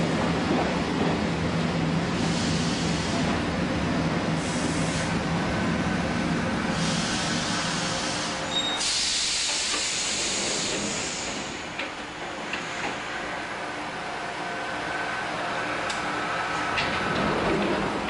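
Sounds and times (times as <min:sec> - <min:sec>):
air brakes hissing: 0:02.2 - 0:03.3, 0:04.4 - 0:05.2, 0:06.7 - 0:11.7
brief squeal: 0:08.5 - 0:09.0.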